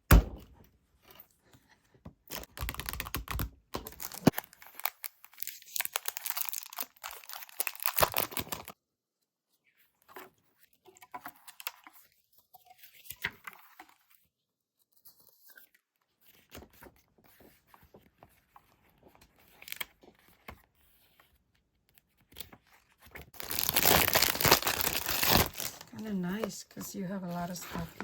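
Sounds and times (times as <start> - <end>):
packaging crinkling and rustling: 2.3 - 8.8, 23.2 - 28.0
packaging tearing: 2.3 - 8.8, 23.4 - 26.0.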